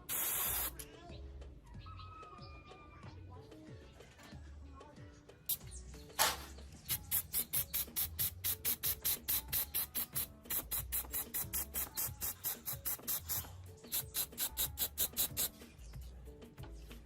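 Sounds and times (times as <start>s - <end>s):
background music: 0.0s - 17.0s
rapid rhythmic rasping strokes: 6.9s - 15.6s.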